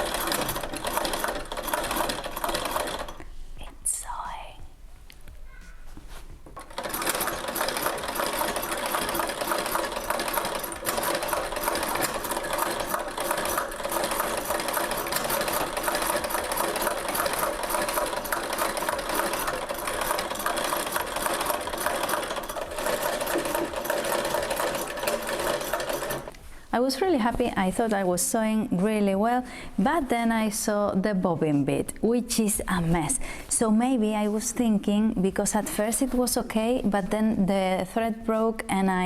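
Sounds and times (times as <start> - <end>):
sewing machine clattering: 0.0 - 3.2, 6.6 - 26.3.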